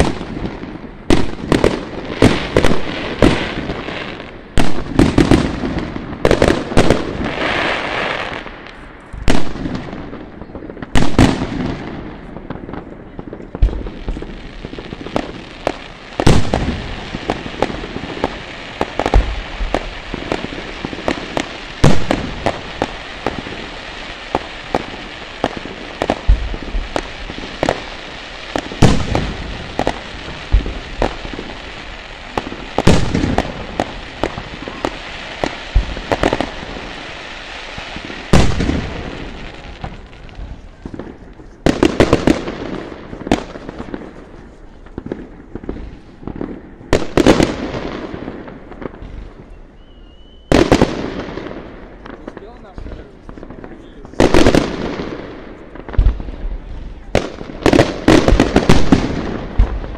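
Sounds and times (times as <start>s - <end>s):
crackle of firework stars: 0.0s - 59.9s
firework shells bursting with bangs: 0.0s - 59.9s.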